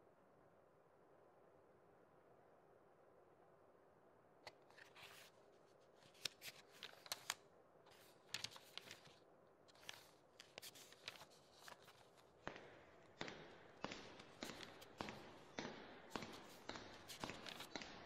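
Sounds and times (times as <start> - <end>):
faint clicks and crackles: 6.0 - 12.3.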